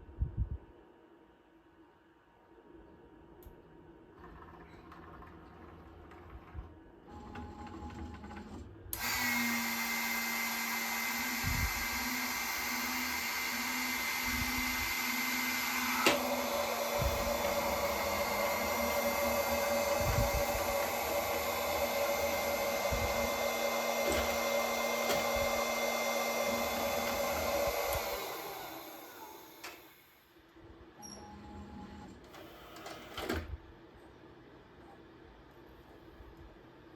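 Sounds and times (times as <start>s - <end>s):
suction motor whining: 9.0s - 30.0s.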